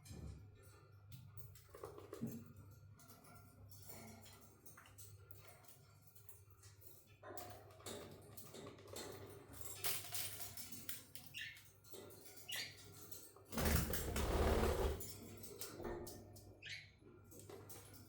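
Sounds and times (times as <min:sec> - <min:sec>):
budgies scratching and rustling: 0:08.0 - 0:15.0
loud wing rustling flurry: 0:13.6 - 0:15.0.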